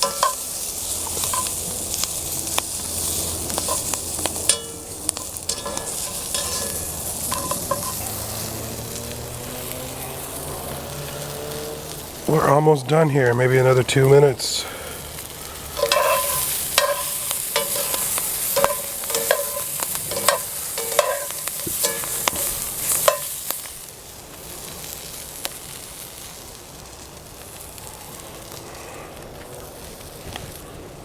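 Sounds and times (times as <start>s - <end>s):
utensil scraping a pan: 0.0s - 2.0s, 2.9s - 8.8s, 15.3s - 23.4s
vegetables sizzling in oil: 0.0s - 31.0s.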